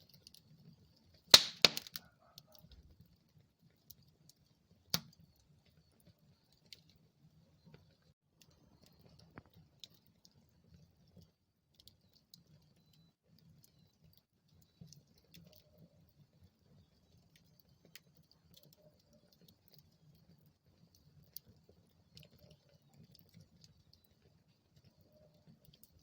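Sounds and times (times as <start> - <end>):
wood fire crackling: 0.0 - 2.6, 3.3 - 26.0
fire pops and snaps: 1.3 - 2.6, 4.8 - 5.5.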